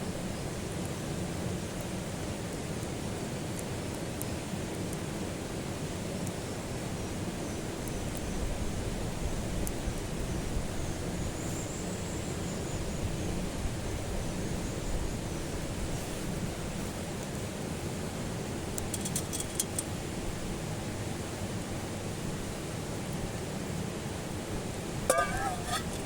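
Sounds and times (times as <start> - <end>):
faint fire crackles: 0.0 - 26.0
wood fire burning: 24.6 - 26.0.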